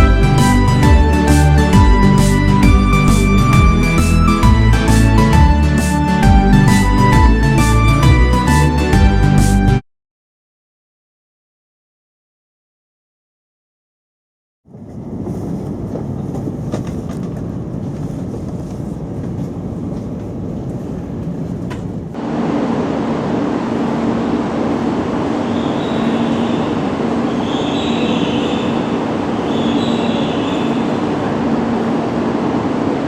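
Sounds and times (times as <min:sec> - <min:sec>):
train wheels rumbling: 0:00.0 - 0:08.0, 0:14.7 - 0:33.0
low hum: 0:00.0 - 0:08.4, 0:14.7 - 0:33.0
short high whines: 0:22.2 - 0:33.0.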